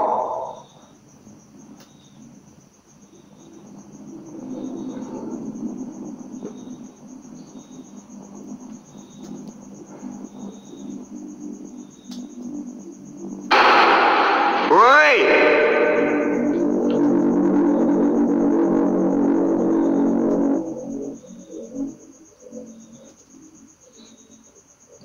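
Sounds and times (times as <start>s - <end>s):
crickets chirping: 0.0s - 25.0s
low droning hum: 13.5s - 21.3s.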